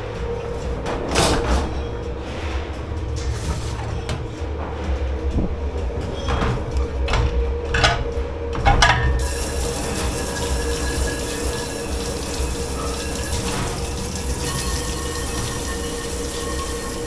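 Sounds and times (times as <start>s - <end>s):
machine hum: 0.0s - 17.0s
dishes and pots clattering: 5.4s - 17.0s
running water: 5.4s - 17.0s.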